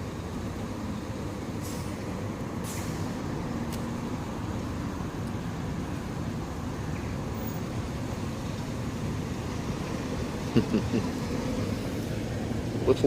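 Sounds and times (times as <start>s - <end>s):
road traffic rumble: 0.0s - 13.0s
voice-like murmur: 10.6s - 11.1s.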